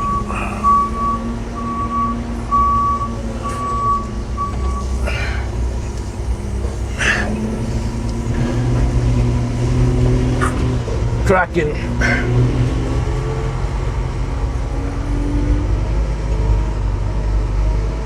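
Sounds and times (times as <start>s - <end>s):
reversing alarm beeping: 0.0s - 5.7s
diesel engine running: 0.0s - 18.0s.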